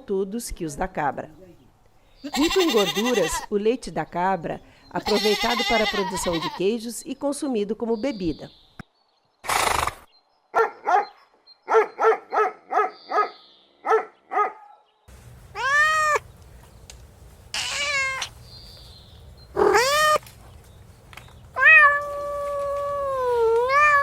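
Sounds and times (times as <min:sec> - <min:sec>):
goats bleating: 0:02.3 - 0:03.5, 0:05.0 - 0:06.6, 0:15.4 - 0:16.3, 0:17.5 - 0:18.4, 0:19.6 - 0:20.3
steady background hum: 0:15.1 - 0:21.6.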